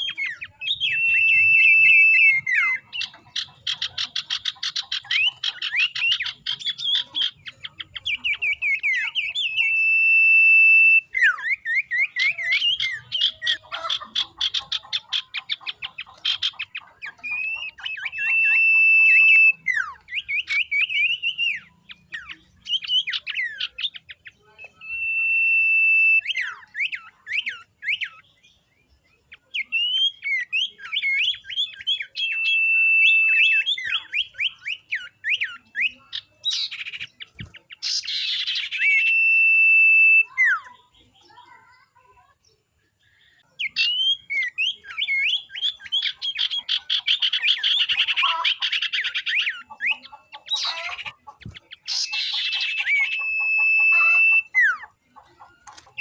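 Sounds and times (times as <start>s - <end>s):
harsh scratchy bird outburst: 0.0s - 21.4s, 45.2s - 54.7s
birds calling with whistles and trills: 0.0s - 56.0s.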